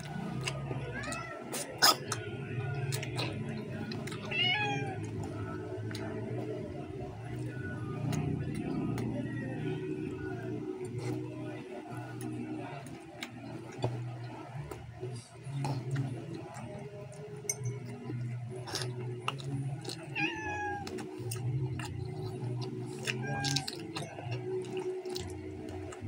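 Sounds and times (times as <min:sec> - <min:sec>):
wet chewing and smacking: 0:01.5 - 0:04.3, 0:15.6 - 0:20.2, 0:20.8 - 0:26.0.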